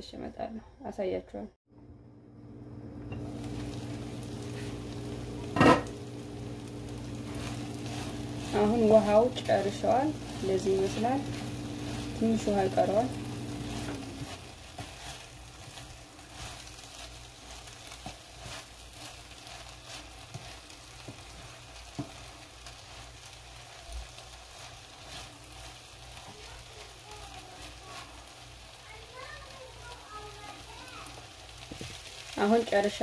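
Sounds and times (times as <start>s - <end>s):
food sizzling in a frying pan: 3.0s - 33.0s
spatula scraping a pan: 7.1s - 28.4s.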